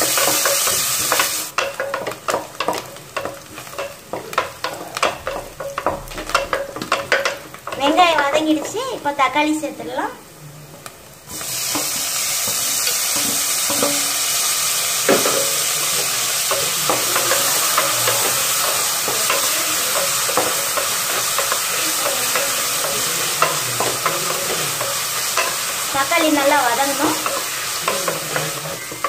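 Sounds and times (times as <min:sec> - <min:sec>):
tomatoes sizzling in hot oil: 0:00.0 - 0:29.0
wooden spatula scraping pan: 0:11.3 - 0:29.0.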